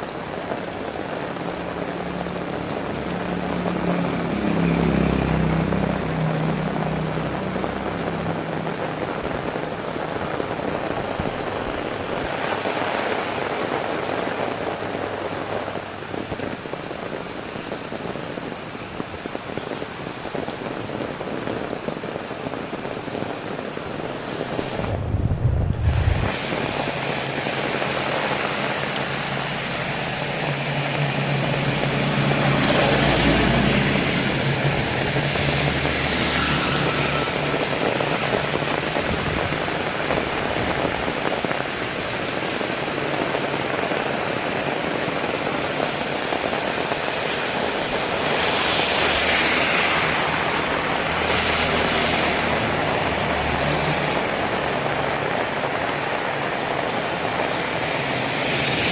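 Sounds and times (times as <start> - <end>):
heavy rain falling: 0.0 - 58.9
vehicle rumble: 21.6 - 42.1.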